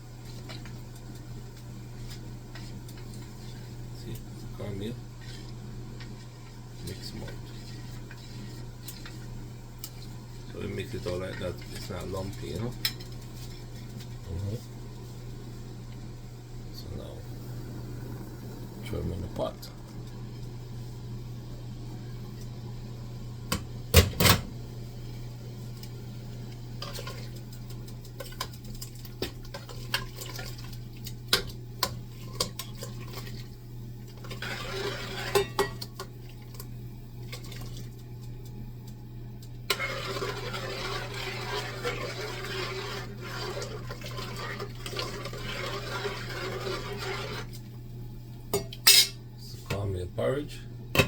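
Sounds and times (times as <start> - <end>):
stirring in a pot: 0.0 - 17.2, 25.0 - 47.8
steady low hum: 0.0 - 51.0
pot and utensil clatter: 34.2 - 36.1.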